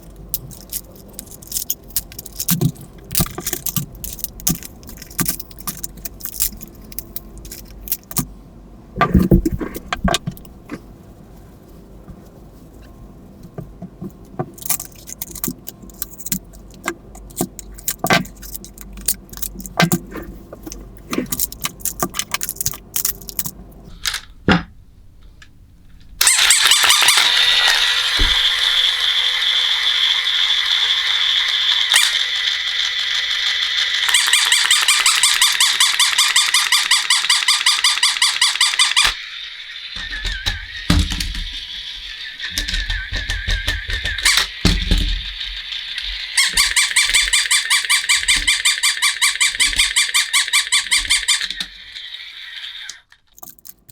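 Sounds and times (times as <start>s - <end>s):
plastic parts clicking and rattling: 0.0s - 8.3s, 14.0s - 39.2s, 40.0s - 53.9s.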